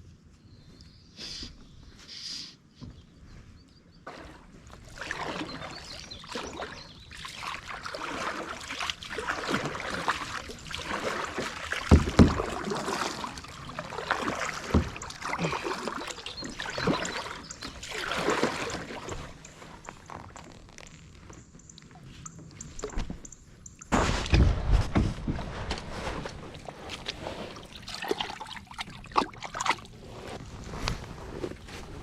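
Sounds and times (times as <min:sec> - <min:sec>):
water splashing against kayak: 0:04.1 - 0:32.0
knock on kayak: 0:11.9 - 0:12.7.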